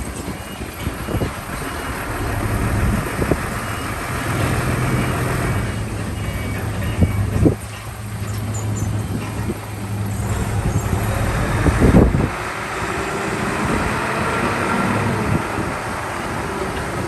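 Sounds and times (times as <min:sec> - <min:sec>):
diesel earthmoving machinery running: 0:00.0 - 0:17.0.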